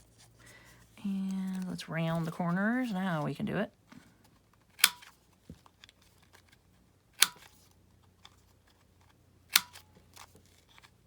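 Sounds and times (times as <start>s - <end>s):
corner punch clicking through card: 4.8s - 5.2s, 7.2s - 7.6s, 9.5s - 10.3s.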